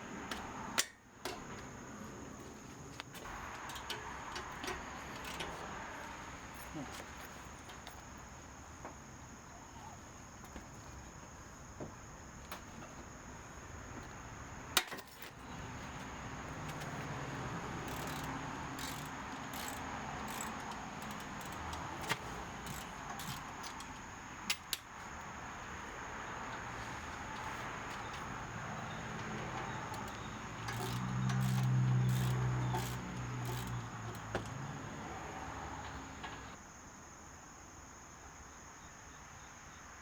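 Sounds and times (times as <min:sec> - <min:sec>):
steady background hum: 0:00.0 - 0:38.7
metal clinks and clicks: 0:03.3 - 0:05.8, 0:17.7 - 0:24.9, 0:28.8 - 0:34.3.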